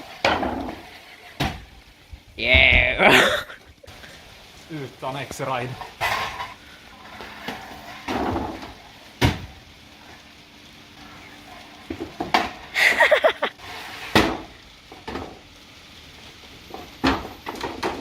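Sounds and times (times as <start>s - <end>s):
scooter wheels rolling on floor: 0.0s - 18.0s
person shouting: 2.4s - 3.5s.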